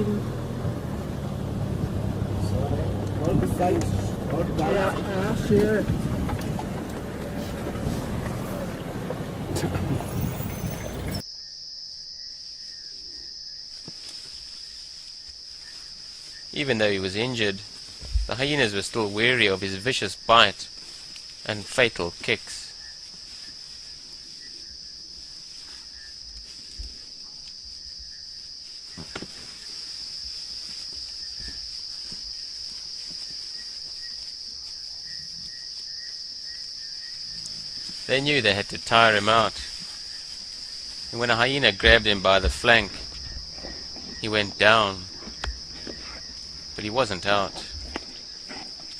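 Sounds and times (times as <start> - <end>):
low vehicle rumble: 0.0 - 11.2, 37.3 - 48.9
crickets chirring: 0.0 - 48.9
faint low knocks: 0.1 - 11.2.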